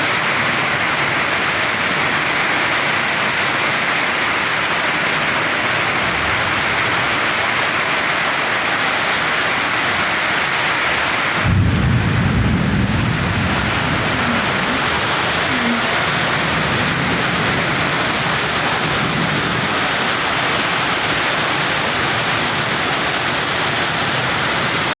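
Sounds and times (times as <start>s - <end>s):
heavy rain pouring: 0.0s - 25.0s
low thunder rumble: 11.4s - 22.7s.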